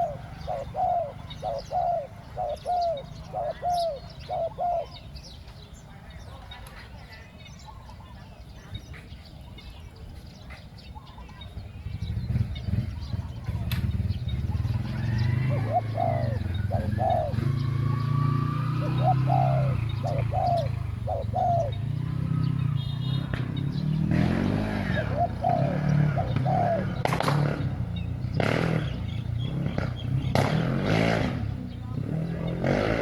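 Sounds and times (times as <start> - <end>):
doves cooing: 0.0 - 5.4, 10.9 - 33.0.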